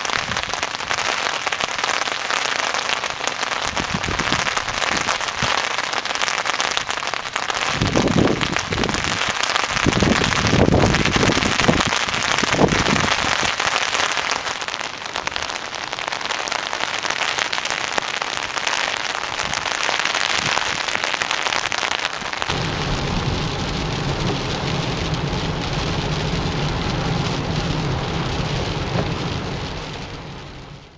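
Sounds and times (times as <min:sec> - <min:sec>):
steady rain falling: 0:00.0 - 0:30.9
low rumbles: 0:22.5 - 0:30.9.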